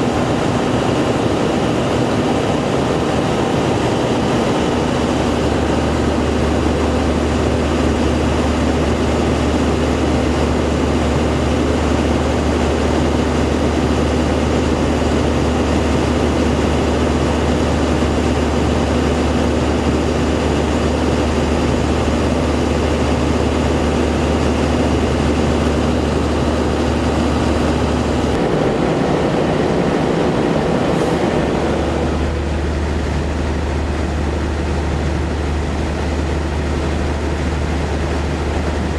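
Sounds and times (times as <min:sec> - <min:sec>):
large engine droning: 0:00.0 - 0:38.9.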